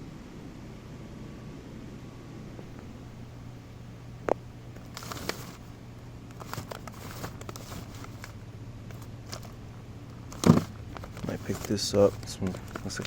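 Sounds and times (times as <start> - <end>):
steady low hum: 0.0 - 13.0
cardboard crinkling rustles: 4.7 - 13.0.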